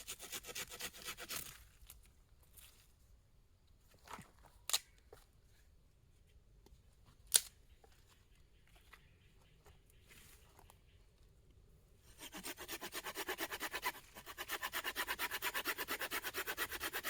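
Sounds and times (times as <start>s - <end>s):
faint rustling and handling: 1.6s - 11.6s.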